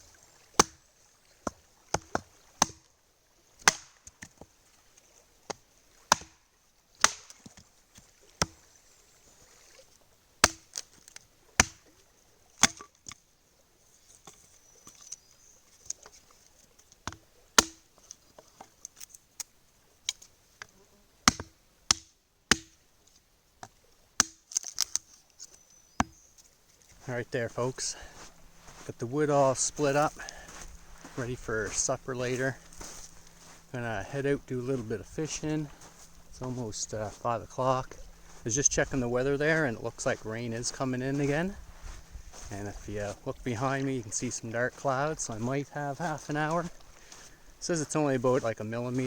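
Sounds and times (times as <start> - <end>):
axe chopping wood: 0.6 - 0.8, 1.4 - 2.8, 3.6 - 4.2, 6.1 - 6.4, 7.0 - 7.4, 10.4 - 10.8, 11.6 - 11.9, 12.6 - 12.9, 17.1 - 17.8, 21.2 - 22.8, 24.2 - 25.0.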